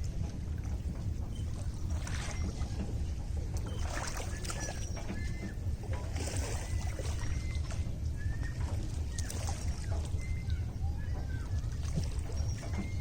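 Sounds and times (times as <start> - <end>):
water lapping and sloshing: 0.0 - 13.0
wind rumble on microphone: 0.0 - 13.0.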